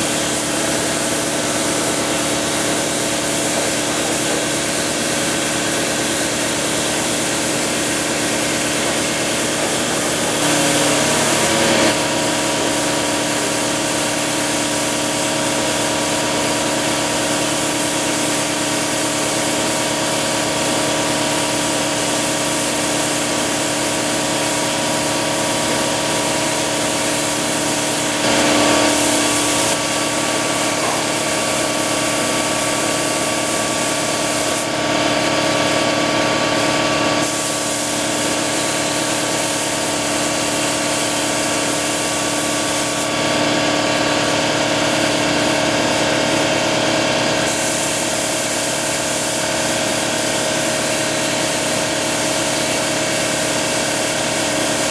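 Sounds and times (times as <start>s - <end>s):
spray gun hissing: 0.0s - 35.9s, 36.5s - 46.6s, 47.3s - 54.9s
motor hum: 9.8s - 12.6s.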